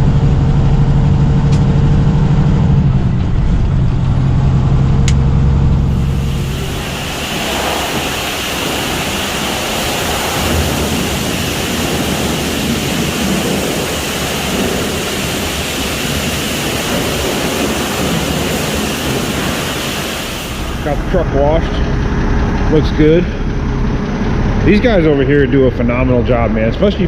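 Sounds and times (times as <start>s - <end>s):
high-pressure water spray hissing: 5.8s - 21.5s.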